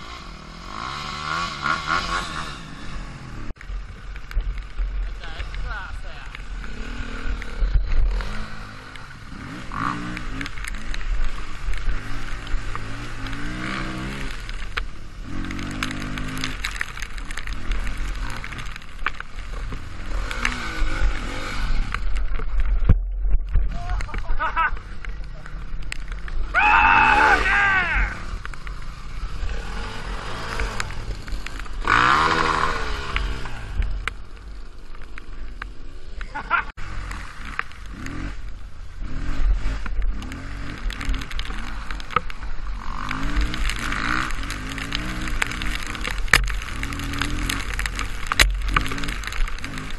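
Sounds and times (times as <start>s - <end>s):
dirt bike engine revving: 0.0s - 3.6s, 5.2s - 22.4s, 26.3s - 34.0s, 35.8s - 49.9s.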